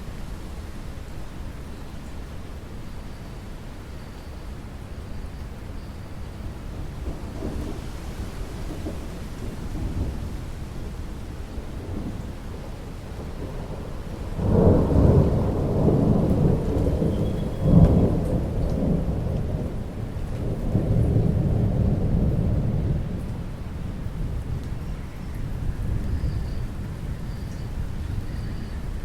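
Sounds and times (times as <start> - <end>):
steady rainfall: 0.0 - 29.0
thunder rumbling: 6.6 - 29.0.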